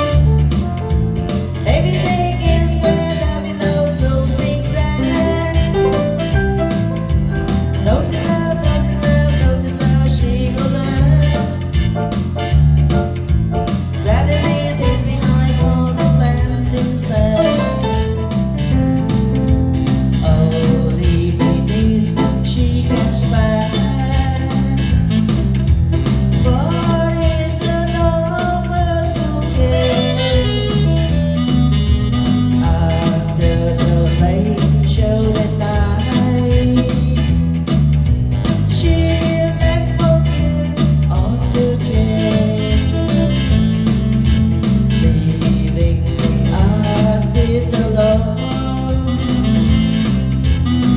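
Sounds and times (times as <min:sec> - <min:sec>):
guitar: 0:00.0 - 0:50.9
steady bass beat: 0:00.0 - 0:50.9
person singing: 0:01.2 - 0:37.8, 0:38.4 - 0:44.1, 0:44.8 - 0:50.9.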